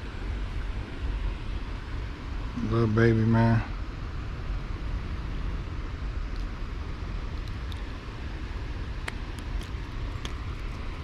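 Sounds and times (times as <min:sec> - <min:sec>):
low outdoor rumble: 0:00.0 - 0:11.0
small sharp ticks: 0:07.3 - 0:07.9, 0:09.0 - 0:11.0.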